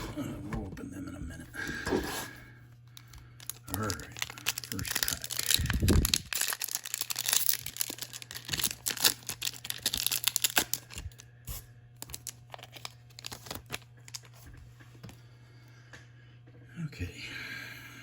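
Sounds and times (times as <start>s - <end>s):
foil wrapper tearing and crinkling: 3.4s - 11.3s, 12.0s - 14.4s.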